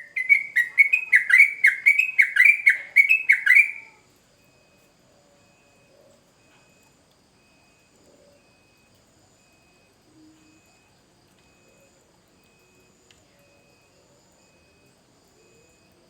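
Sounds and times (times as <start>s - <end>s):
faint high chirp: 0.0s - 8.8s.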